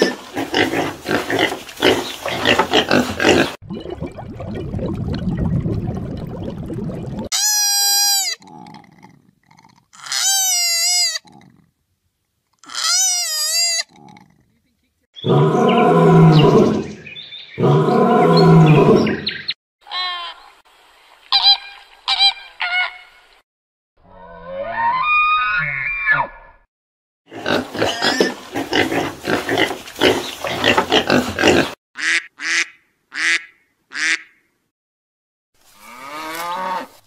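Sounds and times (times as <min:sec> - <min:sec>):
lion roaring: 0:17.6 - 0:19.3.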